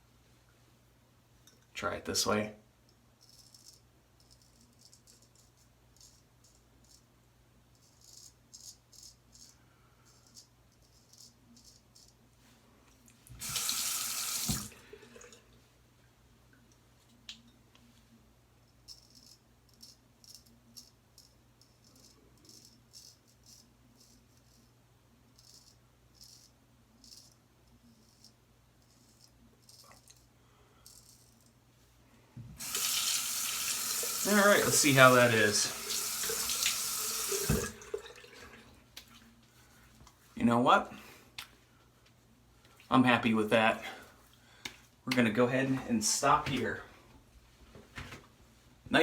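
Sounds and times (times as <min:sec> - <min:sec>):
water tap running: 0:13.4 - 0:15.4, 0:32.6 - 0:38.6.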